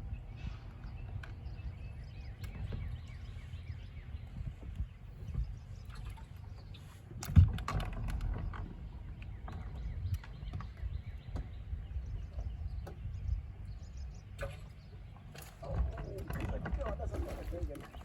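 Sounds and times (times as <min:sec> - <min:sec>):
low constant rumble: 0:00.0 - 0:18.0.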